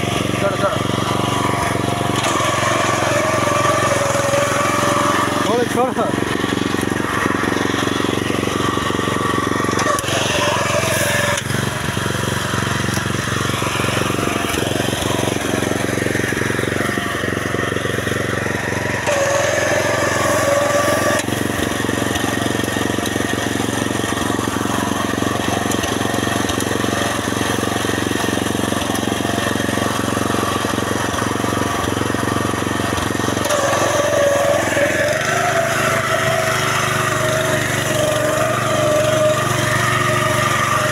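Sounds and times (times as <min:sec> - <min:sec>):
small petrol engine running: 0:00.0 - 0:40.9.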